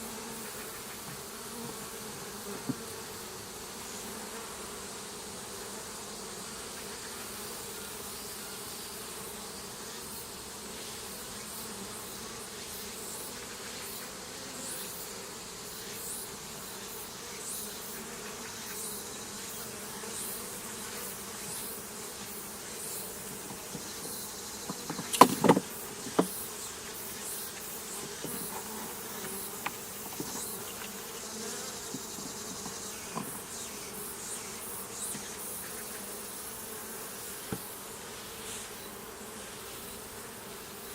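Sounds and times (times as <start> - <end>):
bees buzzing: 0.0 - 40.9
sharp knocks: 24.7 - 26.4.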